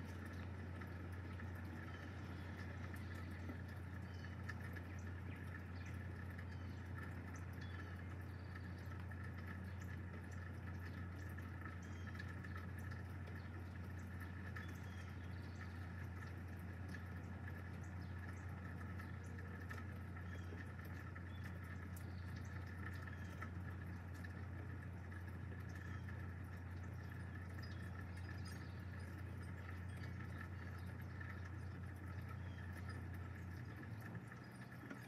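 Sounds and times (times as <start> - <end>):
low hum: 0.0 - 35.0
raindrops ticking: 0.0 - 35.0
steady rain: 0.0 - 35.0.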